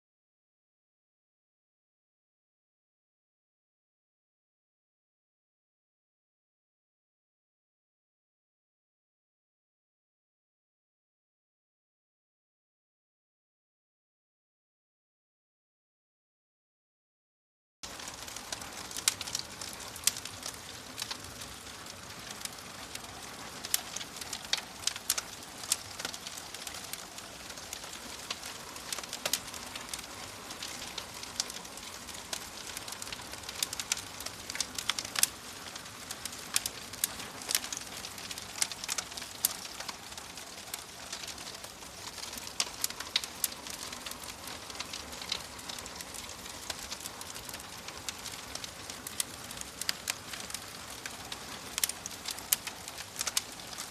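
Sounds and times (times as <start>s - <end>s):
wood fire crackling and popping: 17.8s - 53.9s.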